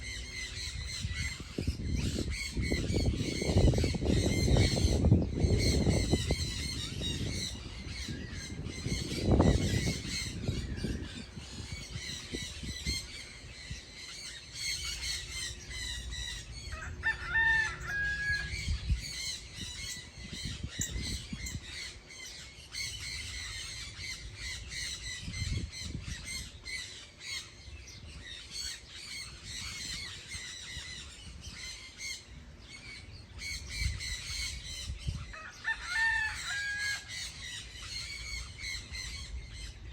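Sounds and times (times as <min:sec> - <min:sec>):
birds chattering and chirping: 0:00.0 - 0:39.9
rooster crowing: 0:16.7 - 0:18.8, 0:35.3 - 0:37.2.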